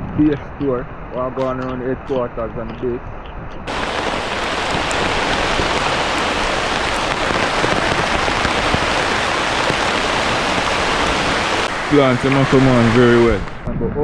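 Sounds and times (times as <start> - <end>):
rain falling: 3.7 - 13.7.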